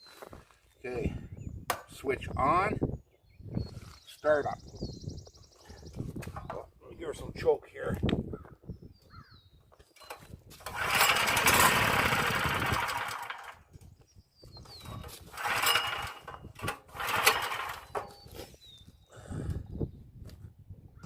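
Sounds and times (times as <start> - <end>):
engine turning over: 10.0 - 13.6, 14.9 - 18.2
generator recoil pull-starts: 10.0 - 13.6, 14.9 - 18.2.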